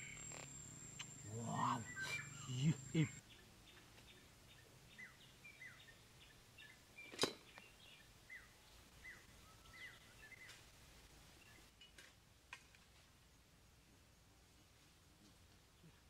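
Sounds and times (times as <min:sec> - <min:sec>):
faint ticks: 0:00.0 - 0:03.2
small bird chirping: 0:00.0 - 0:10.6.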